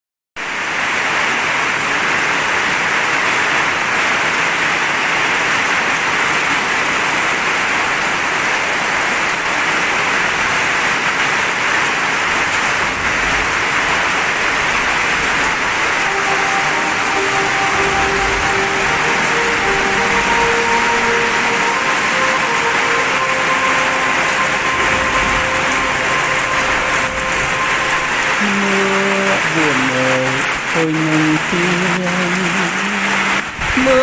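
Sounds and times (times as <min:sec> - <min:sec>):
heavy rain on pavement: 0:00.4 - 0:34.0.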